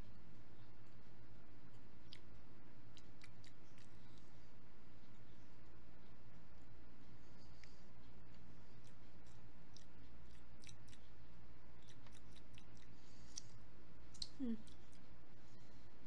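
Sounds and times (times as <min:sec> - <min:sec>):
person chewing: 0:02.9 - 0:04.2, 0:08.3 - 0:11.1, 0:11.8 - 0:15.0
wet mouth clicks: 0:08.8 - 0:11.0, 0:11.8 - 0:13.5, 0:14.1 - 0:15.0.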